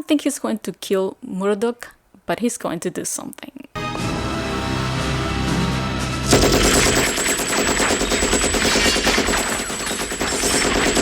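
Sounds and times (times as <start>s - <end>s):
film soundtrack music: 3.8s - 8.4s
machine gun firing: 6.3s - 11.0s.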